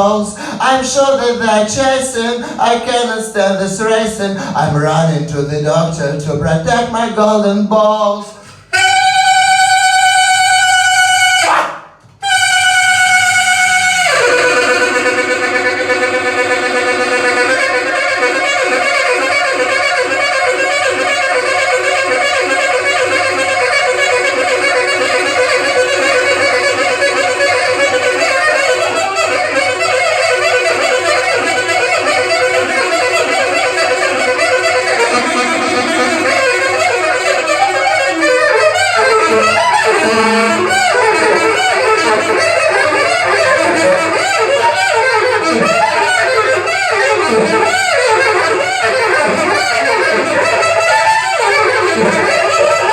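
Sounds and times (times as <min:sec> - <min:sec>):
wind instrument melody: 0:08.3 - 0:52.9
live band playing: 0:12.3 - 0:52.9.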